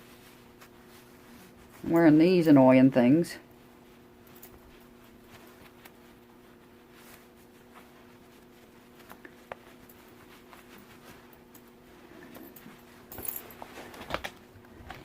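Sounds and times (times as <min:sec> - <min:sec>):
steady low hum: 0:00.0 - 0:15.0
small clicks and rustles of handling: 0:04.2 - 0:06.2, 0:06.9 - 0:15.0.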